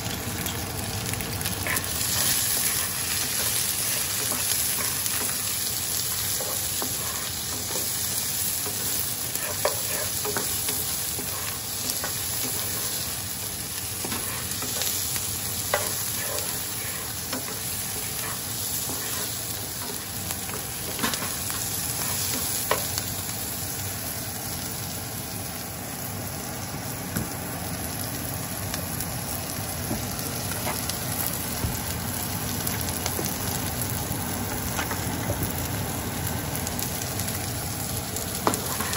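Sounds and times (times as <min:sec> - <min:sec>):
onion and garlic sizzling in a pan: 0:00.0 - 0:38.9
wooden spoon scraping a pan: 0:01.6 - 0:13.2, 0:14.0 - 0:22.9, 0:38.4 - 0:38.9.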